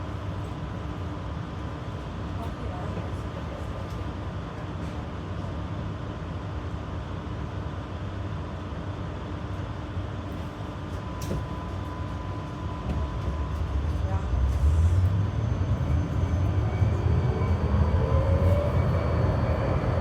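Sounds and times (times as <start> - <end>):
tram interior rumble: 8.5 - 20.0.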